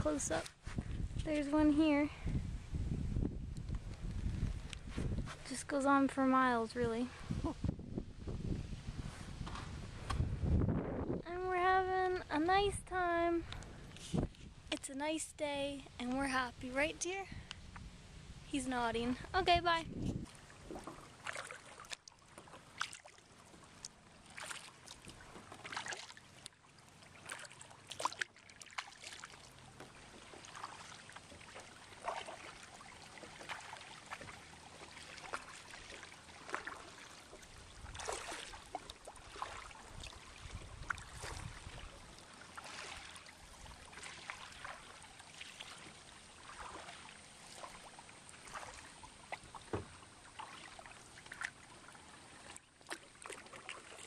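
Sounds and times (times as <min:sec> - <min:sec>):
paddle splashing in water: 0:19.9 - 0:54.0
water dripping off paddle: 0:20.2 - 0:54.0.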